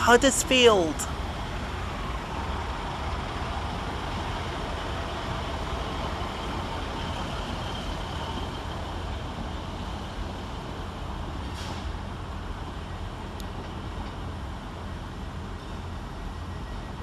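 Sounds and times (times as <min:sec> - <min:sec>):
diesel train engine rumbling: 0:00.0 - 0:17.0.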